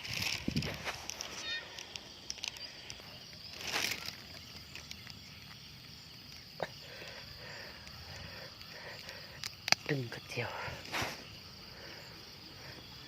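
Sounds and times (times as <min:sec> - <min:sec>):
high-pitched insect trilling: 0:00.0 - 0:13.0
brushing rustle: 0:10.7 - 0:11.3.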